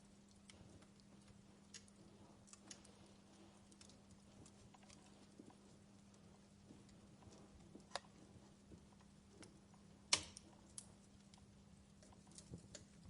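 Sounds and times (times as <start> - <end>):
log fire crackling: 0.0 - 13.0.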